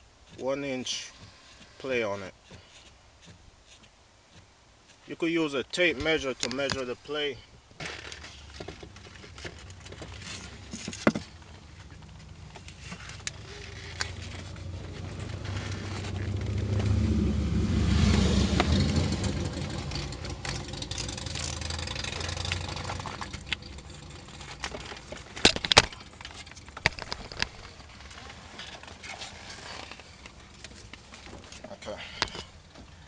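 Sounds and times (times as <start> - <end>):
vehicle passing by: 14.0 - 24.8
sharp clicks and knocks: 19.9 - 28.1.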